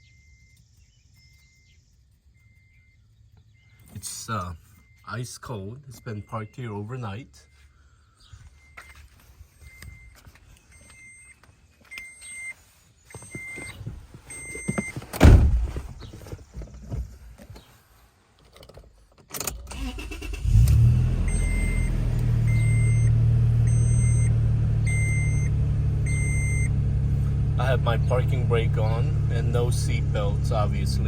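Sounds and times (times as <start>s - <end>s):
car warning chime beeping: 0.0s - 15.0s, 19.7s - 26.8s
loud thumps: 13.6s - 17.1s
car engine starting and idling: 19.3s - 31.0s.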